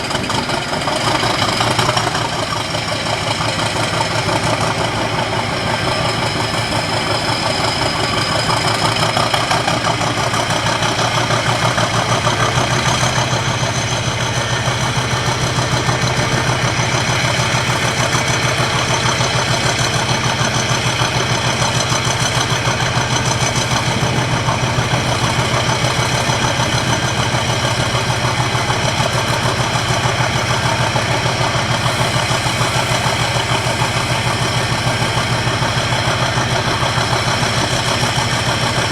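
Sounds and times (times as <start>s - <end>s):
diesel locomotive engine idling: 0.0s - 38.9s
high whine: 21.0s - 28.4s.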